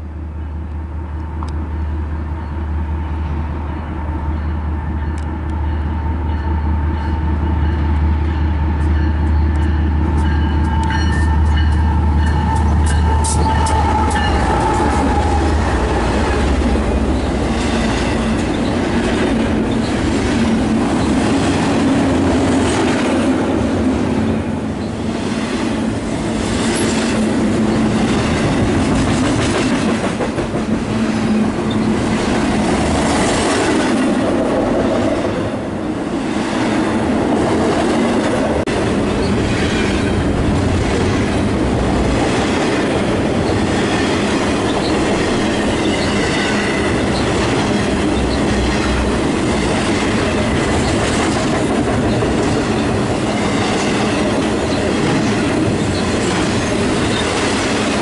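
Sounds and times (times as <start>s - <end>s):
locomotive engine hum: 0.0s - 58.0s.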